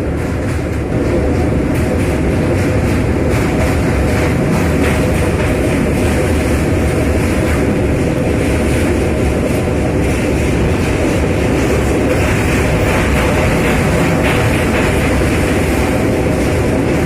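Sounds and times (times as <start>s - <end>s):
train rumbling across bridge: 0.0s - 17.0s.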